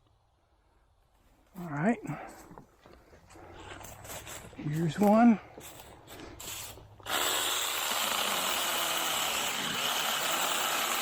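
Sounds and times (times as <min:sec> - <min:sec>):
mini chainsaw cutting: 0:05.6 - 0:11.0.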